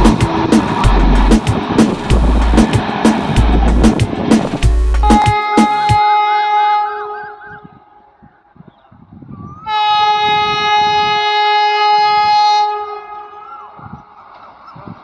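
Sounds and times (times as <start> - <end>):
train wheels rumbling and knocking: 0.0 - 6.0
rush of passing train: 0.0 - 15.0
train horn blast: 4.8 - 8.1, 9.6 - 13.5.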